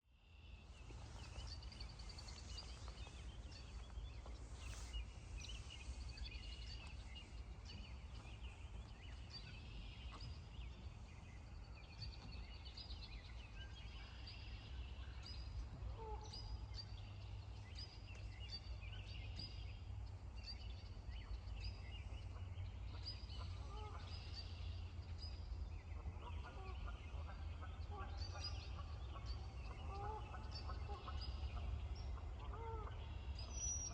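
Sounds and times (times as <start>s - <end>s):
low steady rumble: 0.0s - 33.9s
small birds chirping: 0.8s - 13.7s.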